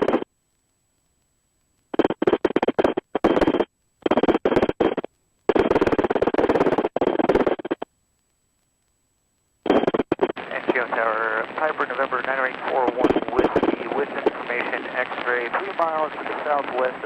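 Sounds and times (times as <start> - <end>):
garbled radio transmission: 0.0 - 0.3, 2.0 - 7.9, 9.7 - 17.0.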